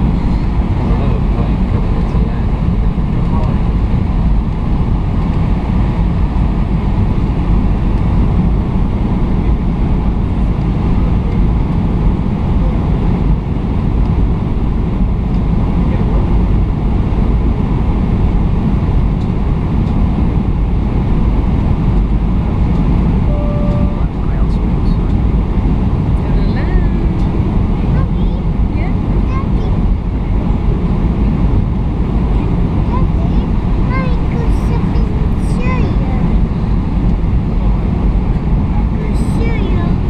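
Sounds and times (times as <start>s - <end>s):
airplane cabin engine rumble: 0.0s - 40.0s
short tone: 23.3s - 24.4s.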